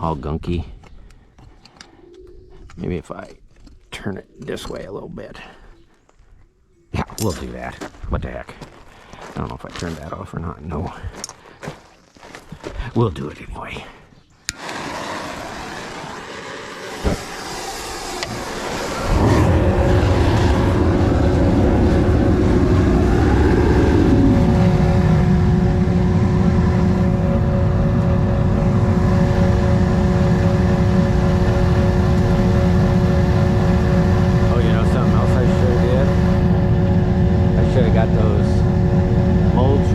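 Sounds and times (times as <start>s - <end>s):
gas burner hissing: 14.5s - 26.9s, 28.7s - 39.9s
gas burner roaring: 14.5s - 39.9s
steady hum: 14.5s - 39.9s.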